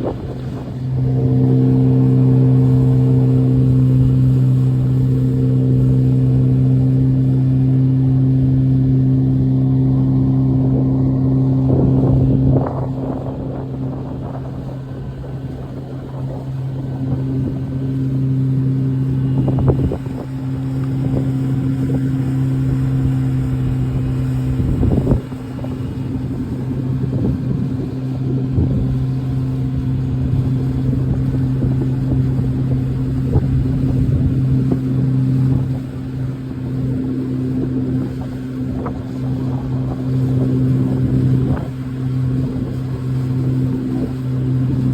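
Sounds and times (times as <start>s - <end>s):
hull thumping on waves: 0.0s - 44.9s
motorboat engine running: 0.0s - 44.9s.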